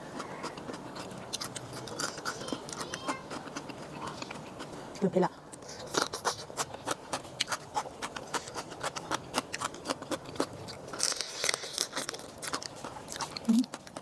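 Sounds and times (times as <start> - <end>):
person chewing crunchy food: 0.0 - 14.0.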